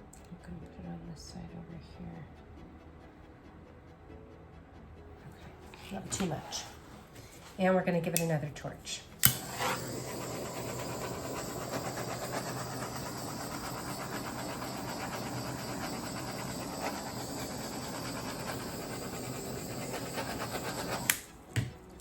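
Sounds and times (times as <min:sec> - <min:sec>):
torch flame hissing: 0:05.3 - 0:07.6, 0:09.2 - 0:22.0
torch igniter click: 0:08.1 - 0:08.4, 0:09.2 - 0:21.7.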